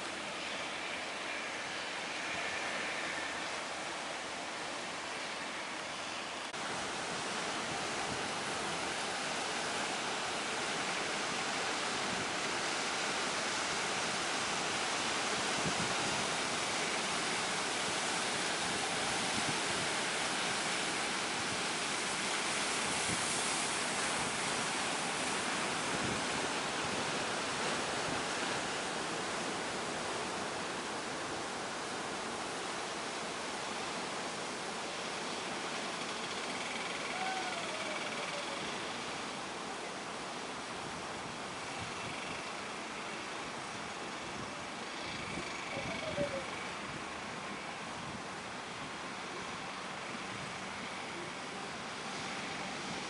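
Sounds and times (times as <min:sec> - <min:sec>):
sea waves breaking: 0:06.6 - 0:42.2.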